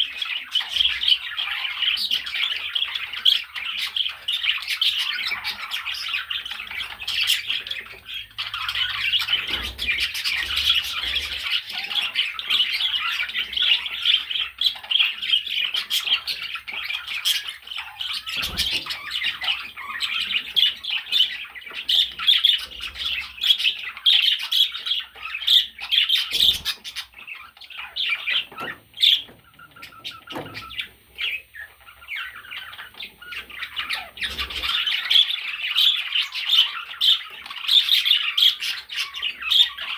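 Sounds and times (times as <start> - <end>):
budgerigar chattering and warbling: 0.0 - 39.9.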